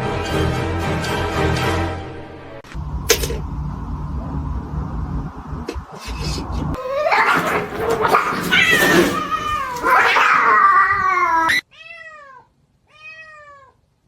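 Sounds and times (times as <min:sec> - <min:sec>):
cat yowling: 0:06.8 - 0:12.4.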